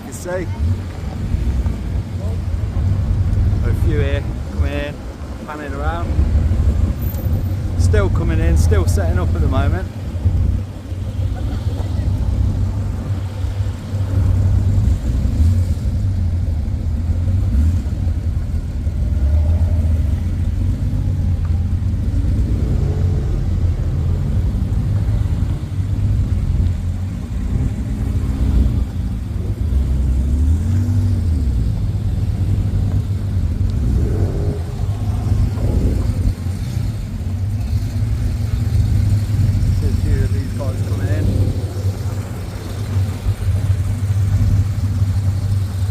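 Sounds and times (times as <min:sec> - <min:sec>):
car engines revving past: 0:00.0 - 0:45.9
constant low rumble: 0:00.0 - 0:45.9.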